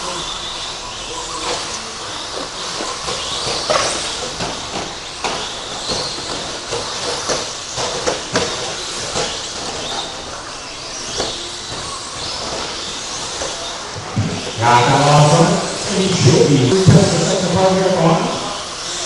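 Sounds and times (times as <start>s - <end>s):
rc truck motor whine: 0.0s - 19.0s.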